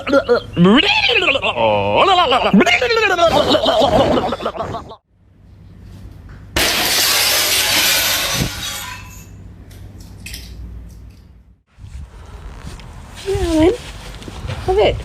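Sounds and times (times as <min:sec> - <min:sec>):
loud crash of something breaking: 0:06.6 - 0:09.2.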